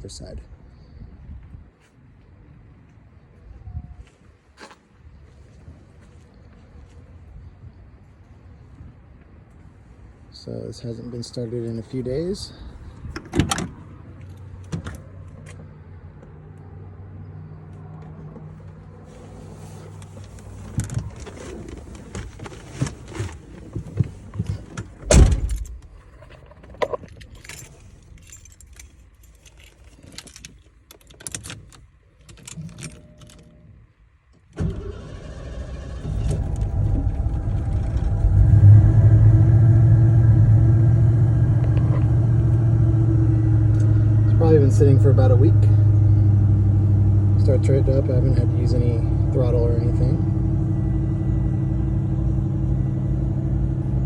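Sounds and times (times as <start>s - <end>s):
car engine idling: 14.0s - 30.3s, 34.6s - 54.0s
car engine cranking and starting: 18.0s - 54.0s
keys jingling: 27.0s - 33.7s.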